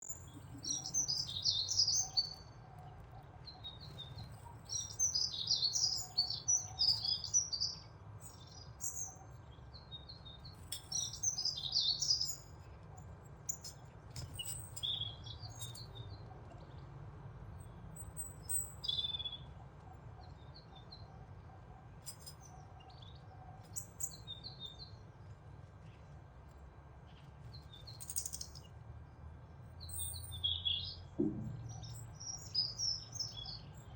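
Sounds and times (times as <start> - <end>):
birds chirping and twittering: 0.0 - 33.9
steady low hum: 31.2 - 32.2.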